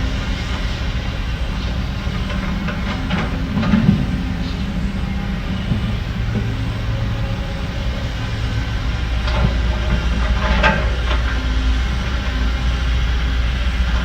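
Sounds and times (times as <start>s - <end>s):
diesel machinery rumbling: 0.0s - 14.0s.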